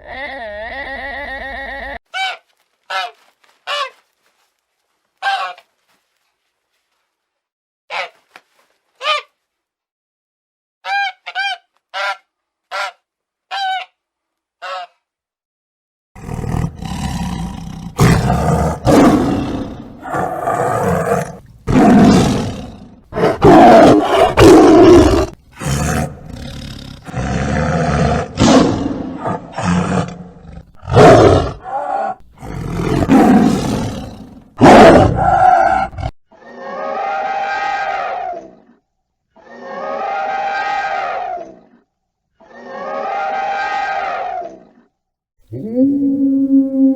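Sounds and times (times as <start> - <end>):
loud harsh animal calls: 34.9 - 38.7, 39.4 - 41.8, 42.4 - 44.7
long pitched animal call: 45.5 - 46.9.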